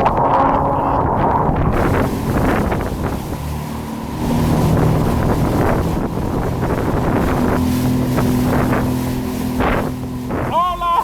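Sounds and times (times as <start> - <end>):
wind buffeting microphone: 0.0 - 10.6
jet ski engine running: 0.0 - 11.0
water rushing past: 0.0 - 11.0.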